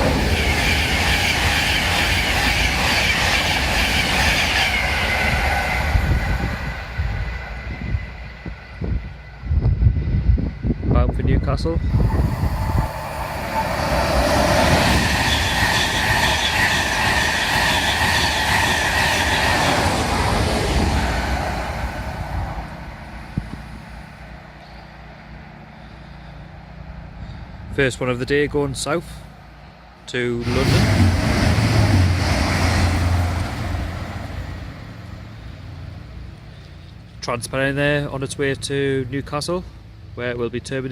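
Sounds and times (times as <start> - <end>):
express train passing: 0.0 - 40.6
high-pitched wheel squeal: 11.9 - 19.7.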